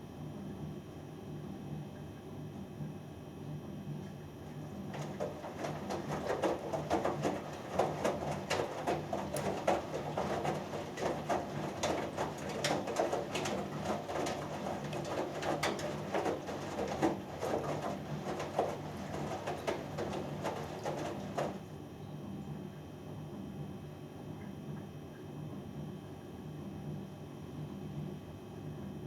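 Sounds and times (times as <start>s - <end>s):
washing machine drum turning: 4.4s - 21.8s
water sloshing: 4.4s - 21.8s
load tumbling with clicks: 4.9s - 21.7s.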